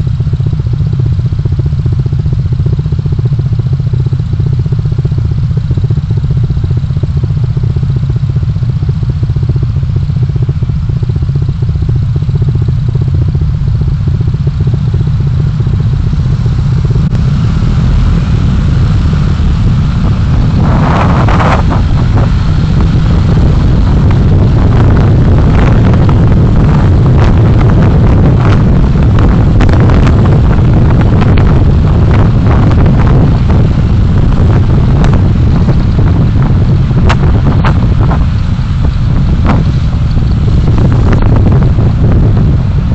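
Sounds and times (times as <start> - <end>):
car road and engine rumble: 0.0 - 42.9.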